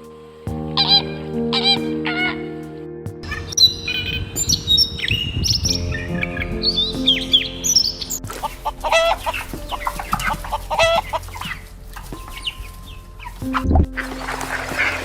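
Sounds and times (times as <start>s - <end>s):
background music: 0.0s - 15.0s
bird chirping: 3.2s - 13.5s.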